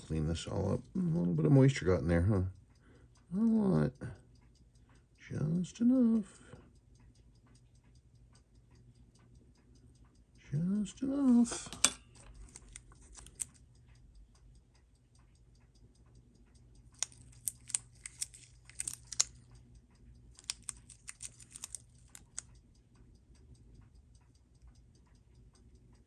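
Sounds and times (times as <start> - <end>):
faint fast ticking: 0.0 - 26.0
metal tools clicking on watch: 2.5 - 26.0.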